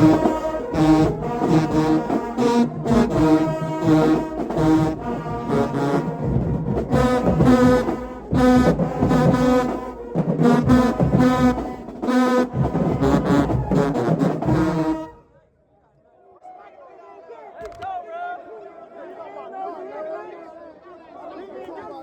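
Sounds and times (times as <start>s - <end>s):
marching band brass chords: 0.0s - 15.3s.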